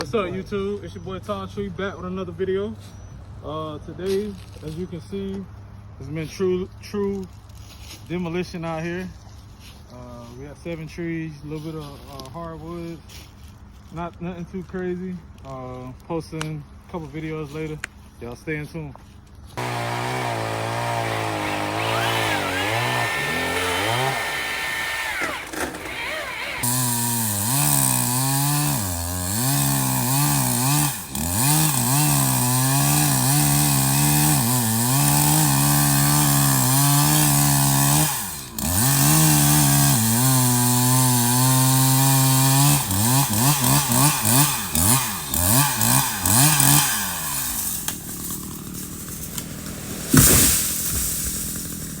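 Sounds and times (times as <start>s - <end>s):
chainsaw cutting wood: 19.6s - 52.0s
sharp knock: 50.1s - 51.1s.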